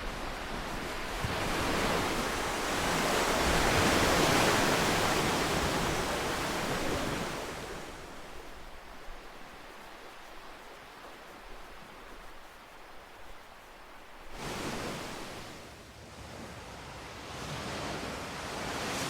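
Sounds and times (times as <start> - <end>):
ocean wave surging: 1.3 - 15.6.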